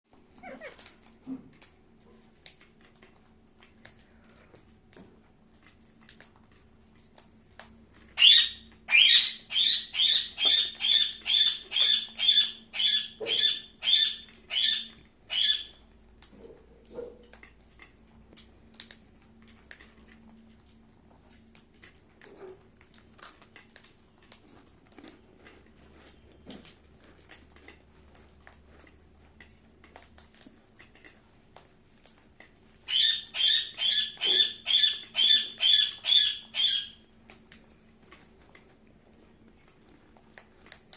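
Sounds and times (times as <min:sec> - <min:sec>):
parrot screeching: 0:08.2 - 0:15.8, 0:32.9 - 0:37.0.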